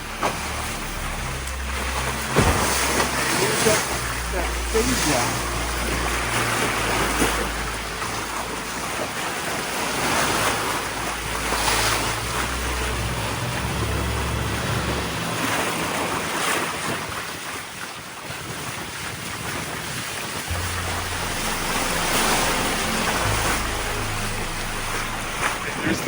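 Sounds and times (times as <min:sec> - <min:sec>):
low rumble: 0:00.0 - 0:17.0, 0:20.5 - 0:26.0
water rushing past hull: 0:00.0 - 0:26.0.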